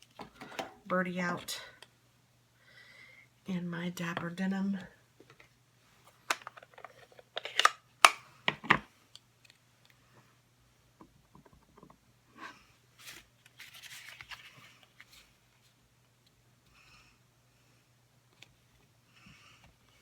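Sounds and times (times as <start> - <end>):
paper rustling: 13.0 - 15.7.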